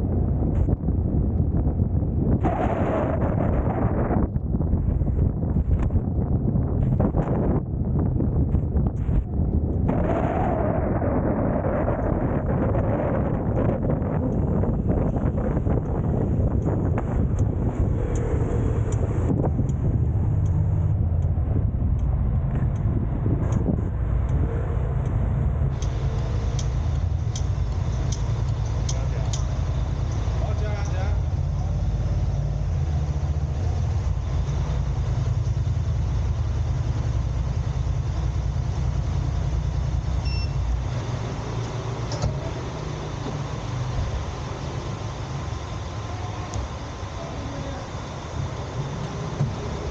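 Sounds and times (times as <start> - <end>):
car engine and tyre rumble: 0.0 - 49.9
click: 18.1 - 18.3, 25.0 - 26.0, 26.6 - 29.5
short beep: 40.2 - 40.7.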